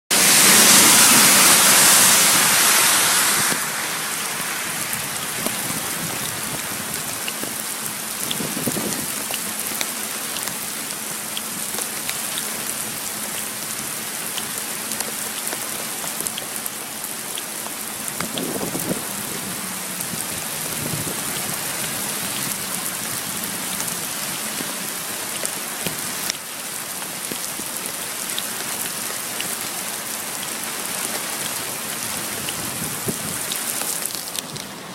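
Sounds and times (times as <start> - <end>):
rain on a flooded street: 0.1 - 34.9.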